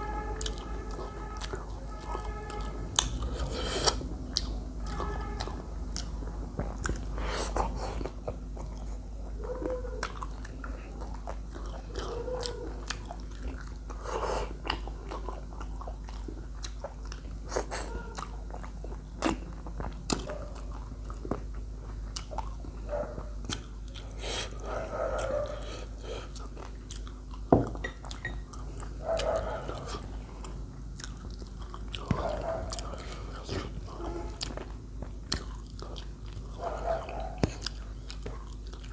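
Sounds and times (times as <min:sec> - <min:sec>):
chewing crunches: 0:00.4 - 0:38.9.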